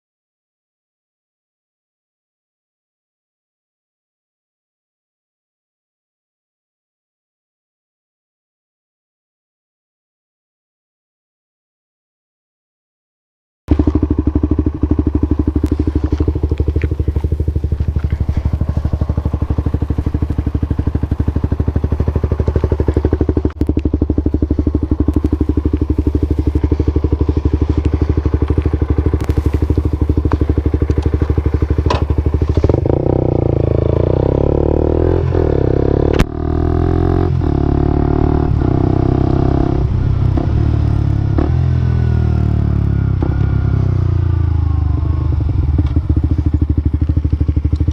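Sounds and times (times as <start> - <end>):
motorcycle engine idling: 13.7 - 47.9.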